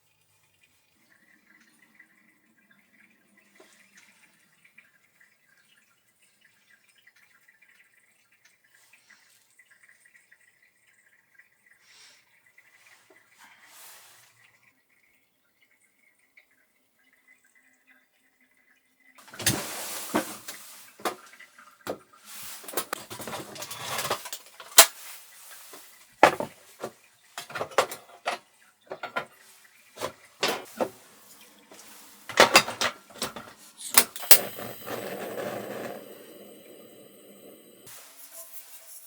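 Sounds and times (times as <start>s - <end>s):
rustling splashy hiss: 19.4s - 21.2s
sharp clicks and knocks: 26.2s - 29.3s, 30.0s - 31.0s, 32.3s - 37.9s.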